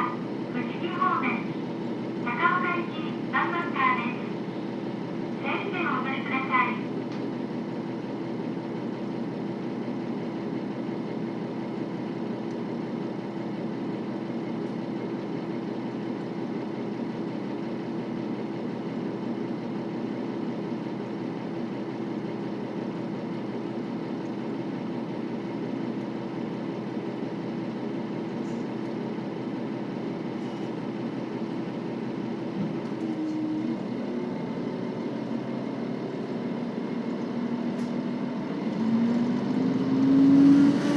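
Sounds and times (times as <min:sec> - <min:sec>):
diesel railcar engine running: 0:00.0 - 0:40.9.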